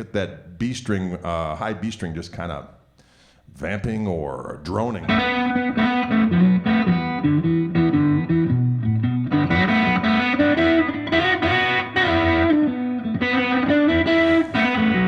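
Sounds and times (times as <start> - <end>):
overdriven electric guitar shuffle: 5.0 - 15.0.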